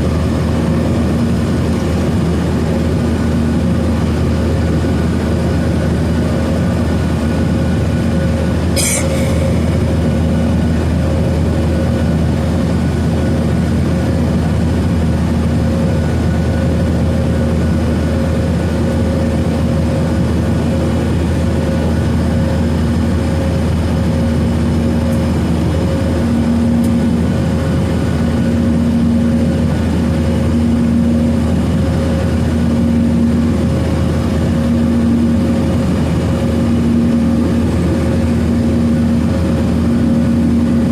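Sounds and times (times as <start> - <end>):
airplane cabin roar: 0.0 - 40.9
low hum: 7.9 - 13.4
beating engine tone: 8.8 - 11.2.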